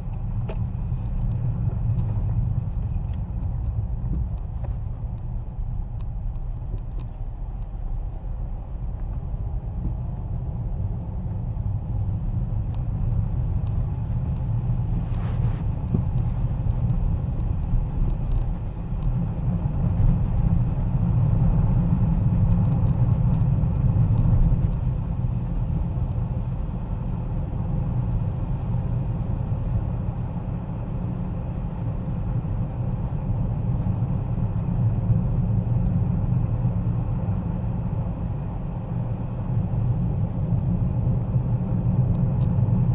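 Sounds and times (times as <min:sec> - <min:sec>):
car driving on wet road: 0:13.0 - 0:26.6.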